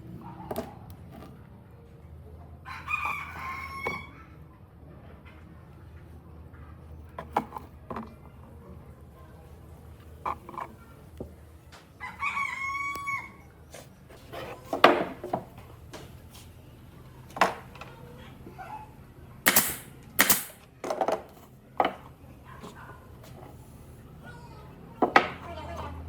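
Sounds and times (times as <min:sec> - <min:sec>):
rooster crowing: 0:02.6 - 0:04.4, 0:12.0 - 0:13.5
sharp knocks: 0:19.5 - 0:20.6.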